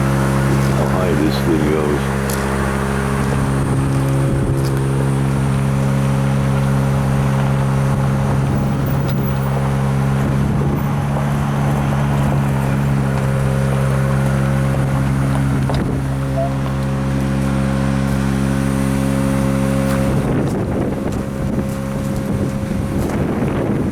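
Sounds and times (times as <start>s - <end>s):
engine droning: 0.0s - 23.9s.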